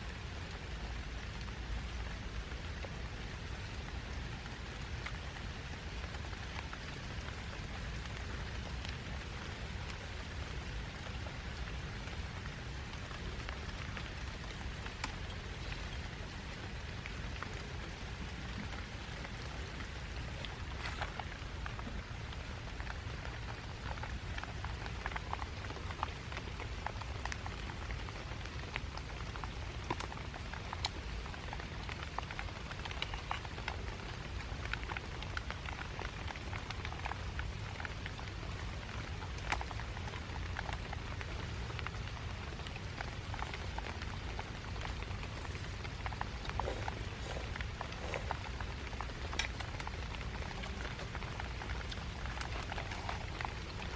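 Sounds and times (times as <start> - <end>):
raindrops ticking close by: 0.0 - 53.9
steady rain falling: 0.0 - 53.9.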